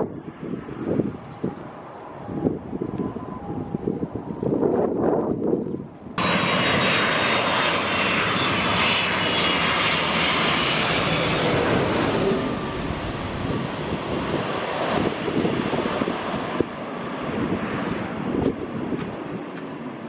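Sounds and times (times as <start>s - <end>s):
jet airliner passing overhead: 0.0s - 20.0s
high engine whine: 6.1s - 16.8s.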